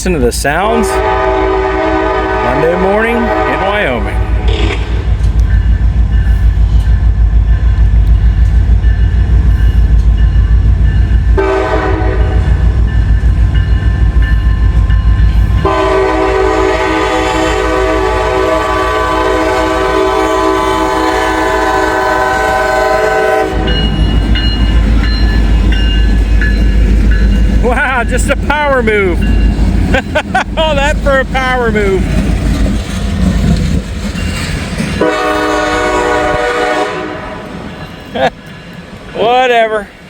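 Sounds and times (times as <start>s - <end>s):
diesel locomotives throbbing: 0.0s - 40.0s
locomotive air horn: 0.8s - 5.0s, 11.4s - 12.5s, 15.6s - 23.8s, 35.0s - 37.5s.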